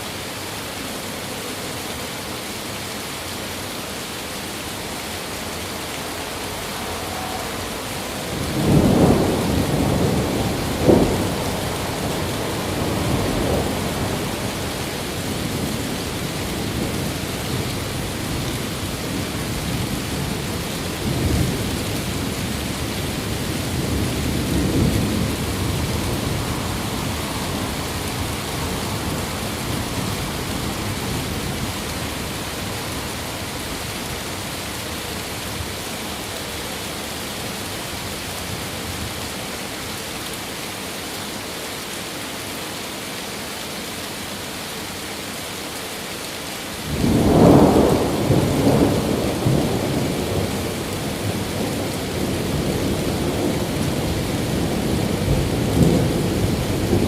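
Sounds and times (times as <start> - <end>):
steady rain: 0.0 - 57.0
thunder rumbling: 6.0 - 33.8, 46.9 - 57.0.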